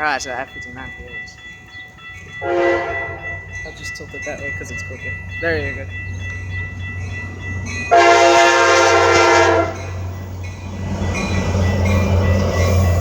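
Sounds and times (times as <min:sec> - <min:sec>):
electronic crossing bells ringing: 0:00.0 - 0:13.0
train rumble: 0:00.0 - 0:13.0
locomotive air horn blast: 0:02.4 - 0:03.3, 0:07.9 - 0:09.8.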